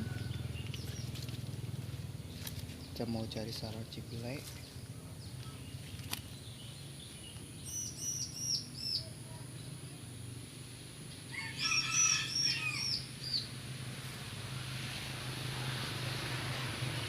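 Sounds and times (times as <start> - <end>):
small bird calling: 4.6 - 9.7.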